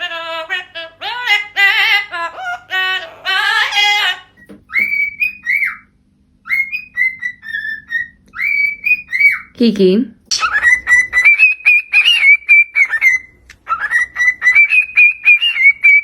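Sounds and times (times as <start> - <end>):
parrot singing: 0.0 - 9.6, 10.3 - 16.0.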